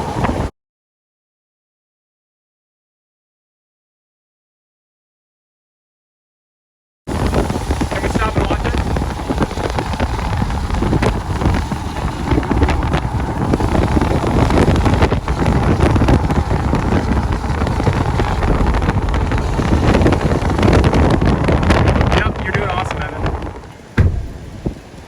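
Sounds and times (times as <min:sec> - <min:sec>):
wind buffeting microphone: 0:00.0 - 0:00.5, 0:07.1 - 0:25.0.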